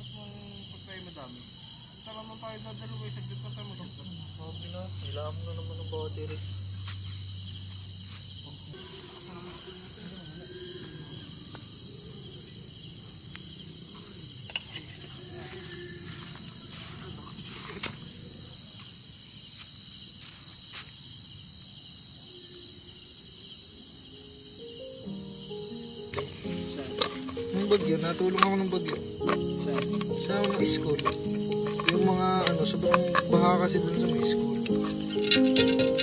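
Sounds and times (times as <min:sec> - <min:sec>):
crickets trilling: 0:00.0 - 0:36.0
sharp clicks: 0:26.2 - 0:36.0.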